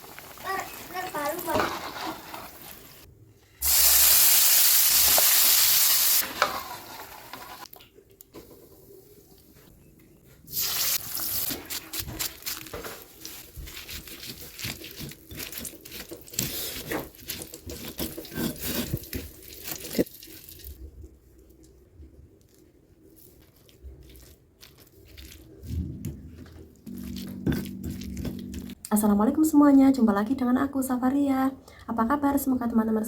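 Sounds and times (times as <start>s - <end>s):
food frying in hot oil: 0.0s - 7.6s.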